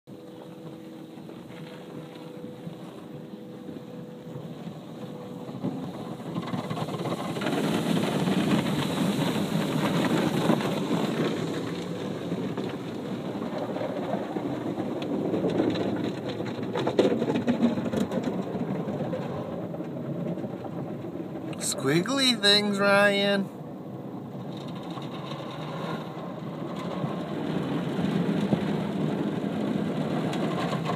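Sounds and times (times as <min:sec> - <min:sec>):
car wash machinery: 0:00.1 - 0:21.8.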